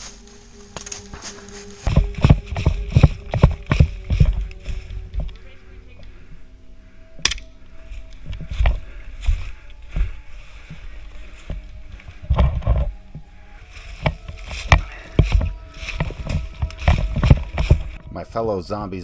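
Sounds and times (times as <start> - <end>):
gear rustling: 0.0 - 18.1
footsteps thumping: 0.8 - 5.4, 8.2 - 18.0.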